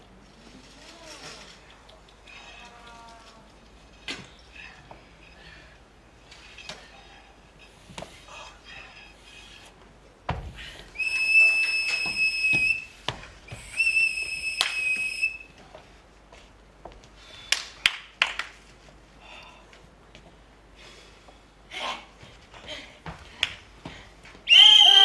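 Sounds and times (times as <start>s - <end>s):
whistle blasts: 11.0s - 15.5s, 24.5s - 25.0s.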